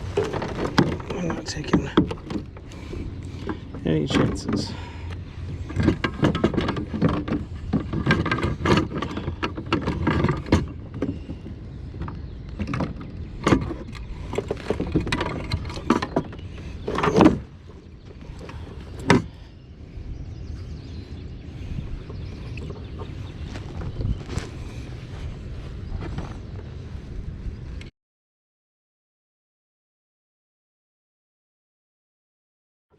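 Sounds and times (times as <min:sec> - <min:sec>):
gear knocking on plastic kayak: 0:00.0 - 0:19.4.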